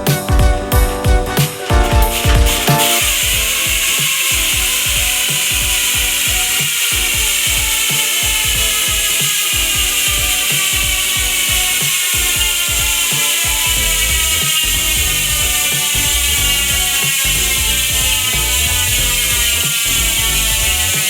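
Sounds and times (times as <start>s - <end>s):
bicycle hub ratcheting: 2.2s - 21.0s.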